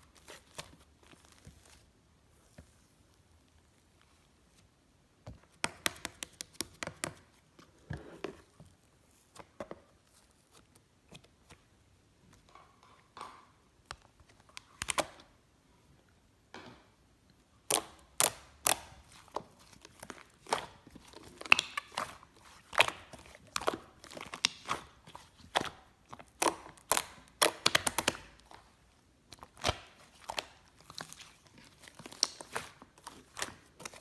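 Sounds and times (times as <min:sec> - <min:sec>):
slime clicking and popping: 0:17.7 - 0:19.0, 0:25.5 - 0:28.6.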